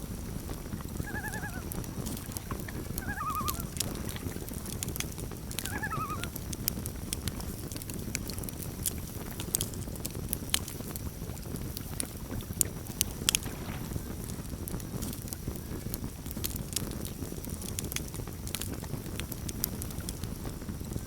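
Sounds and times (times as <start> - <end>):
campfire crackling and popping: 0.0 - 21.0
low fire rumble: 0.0 - 21.0
loon tremolo call: 1.0 - 1.7, 3.0 - 3.7, 5.7 - 6.3.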